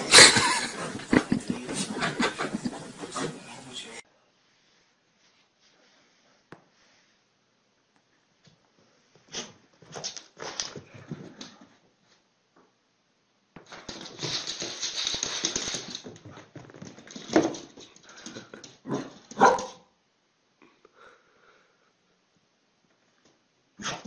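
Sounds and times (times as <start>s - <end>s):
dog huffing: 0.0s - 3.8s.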